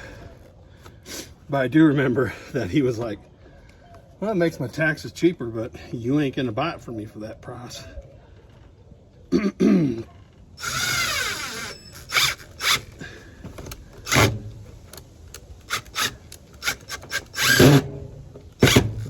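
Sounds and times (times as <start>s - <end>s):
tool rasping whir: 10.6s - 13.0s, 15.6s - 18.0s, 18.6s - 19.0s.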